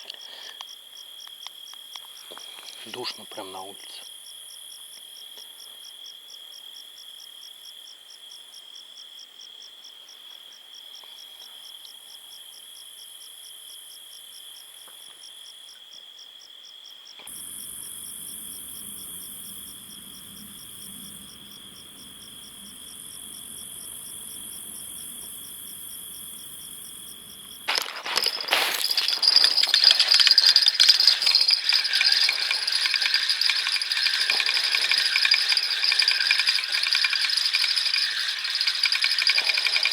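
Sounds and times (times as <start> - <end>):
crickets chirping: 0.0 - 39.9
rattling jingling clatter: 22.3 - 39.9.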